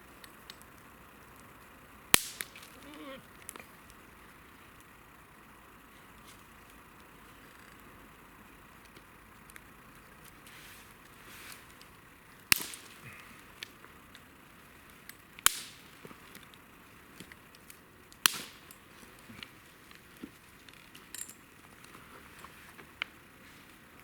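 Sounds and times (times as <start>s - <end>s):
campfire crackling: 0.0s - 24.0s
loud fire pops: 2.1s - 3.7s, 11.6s - 14.3s, 14.9s - 20.8s.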